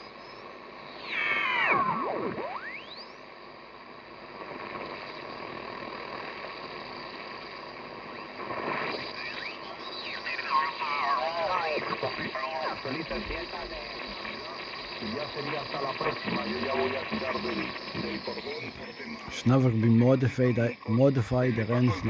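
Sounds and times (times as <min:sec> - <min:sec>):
shortwave radio static: 0:00.0 - 0:22.0
whistling radio signal: 0:00.0 - 0:22.0
garbled sideband voice: 0:19.1 - 0:22.0.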